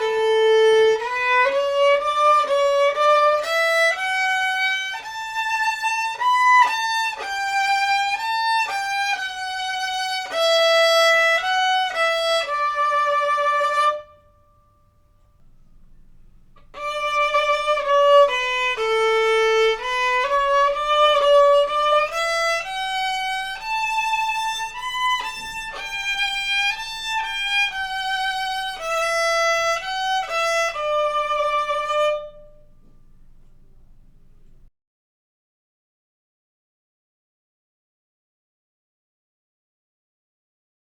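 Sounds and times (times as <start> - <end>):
violin played with bow: 0.0 - 34.7.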